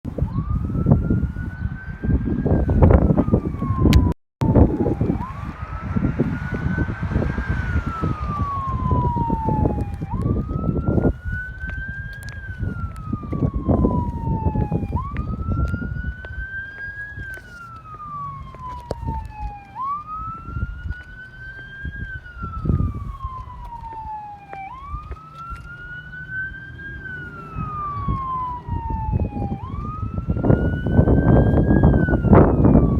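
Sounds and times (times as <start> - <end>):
heavy low rumble: 0.1 - 11.7
siren wailing: 0.1 - 32.9.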